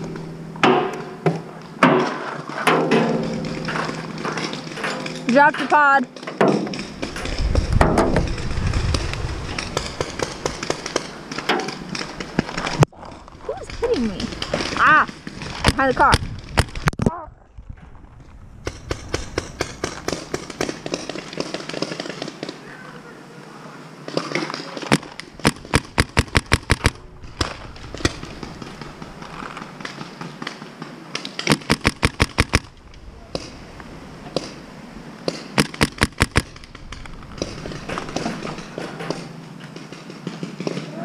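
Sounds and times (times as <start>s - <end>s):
paintball markers firing: 24.9s - 28.2s, 31.2s - 32.7s, 35.3s - 36.6s.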